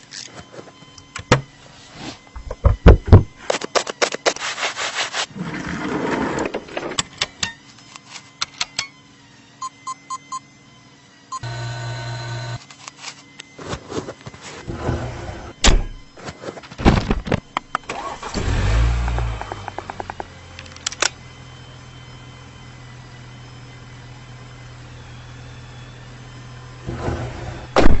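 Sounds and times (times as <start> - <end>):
car engine starting and idling: 17.7 - 21.6.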